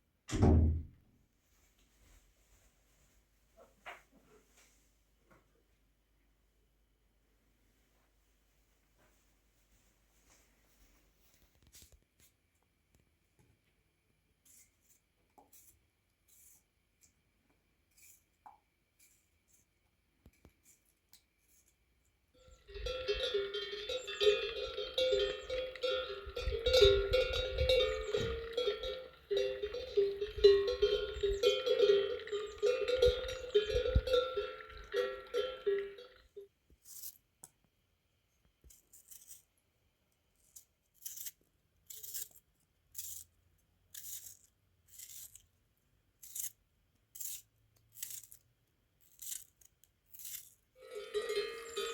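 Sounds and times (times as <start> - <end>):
metallic clanking and ringing: 22.5 - 36.2, 50.8 - 51.9.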